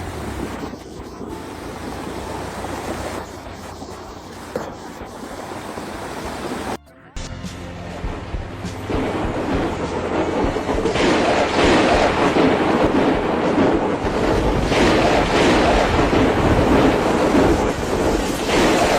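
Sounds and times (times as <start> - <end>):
rushing water surging: 0.0 - 6.8, 8.9 - 18.9
wind buffeting microphone: 8.9 - 18.9.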